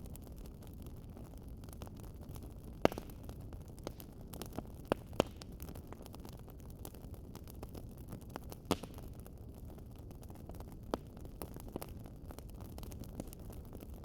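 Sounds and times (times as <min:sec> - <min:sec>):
wood fire crackling: 0:00.0 - 0:14.0
sharp fire pops: 0:01.2 - 0:09.3.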